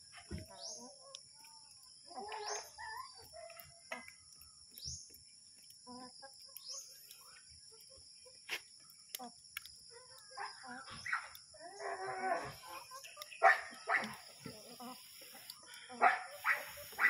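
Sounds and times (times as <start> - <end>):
faint bird calls: 10.0 - 17.0
steady high-pitched hiss: 10.8 - 17.0.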